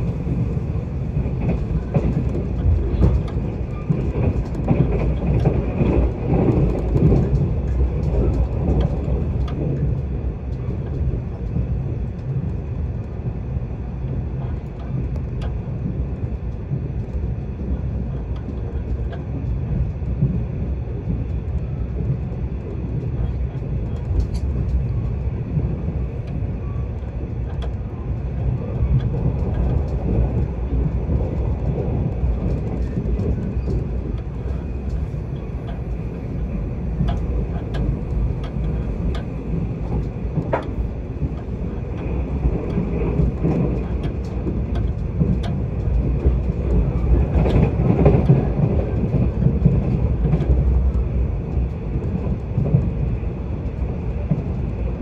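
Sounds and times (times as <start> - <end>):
train wheels rumbling on rails: 0.0 - 55.0
faint clicks and rattles: 14.1 - 55.0.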